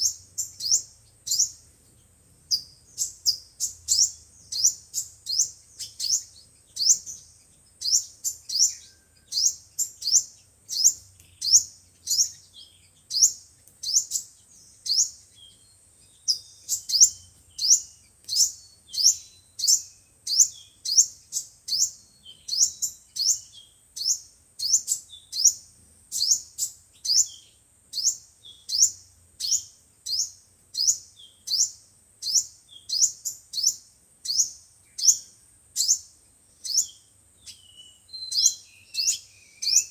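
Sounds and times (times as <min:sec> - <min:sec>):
high-pitched bird chirps: 0:00.0 - 0:01.6, 0:02.5 - 0:07.2, 0:07.8 - 0:25.6, 0:26.2 - 0:39.9.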